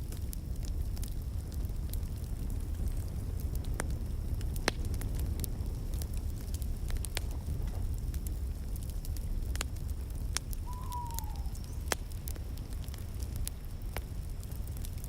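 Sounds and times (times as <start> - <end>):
wood fire crackling: 0.0 - 15.0
falling whistle-like tone: 10.7 - 11.6.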